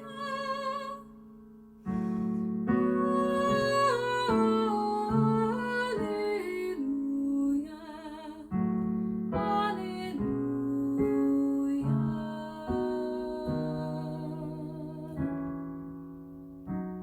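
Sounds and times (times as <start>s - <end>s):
piano chords: 0.0s - 17.0s
person singing with vibrato: 2.7s - 8.6s.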